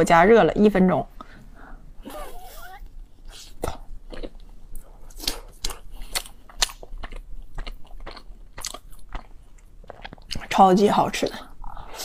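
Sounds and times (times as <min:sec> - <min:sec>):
chewing with mouth clicks: 0:03.6 - 0:10.5.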